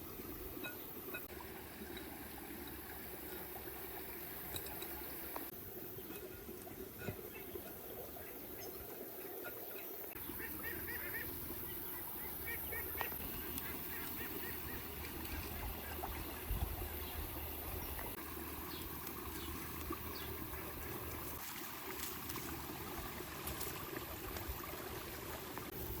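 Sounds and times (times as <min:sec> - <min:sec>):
birds calling high notes: 0:08.2 - 0:21.0.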